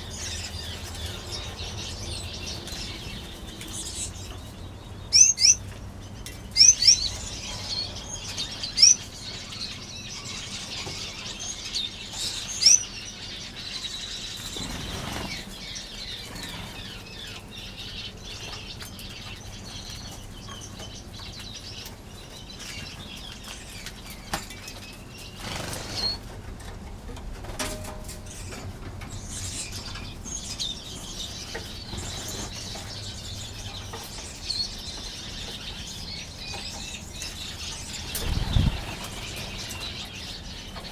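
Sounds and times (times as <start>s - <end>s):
finches chirping: 0.0s - 23.9s, 24.9s - 26.2s, 28.3s - 40.9s
wings fluttering: 14.4s - 17.0s, 25.2s - 26.4s, 37.6s - 40.3s.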